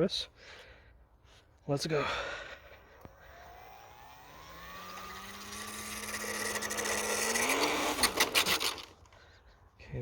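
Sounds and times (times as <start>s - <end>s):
electric motor and propeller whine: 1.9s - 9.2s.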